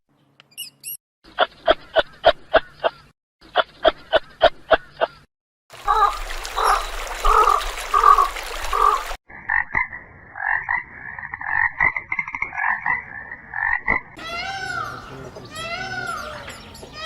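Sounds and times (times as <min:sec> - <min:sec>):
frogs croaking: 0:05.8 - 0:17.0
animal calls rising and falling: 0:14.2 - 0:17.0.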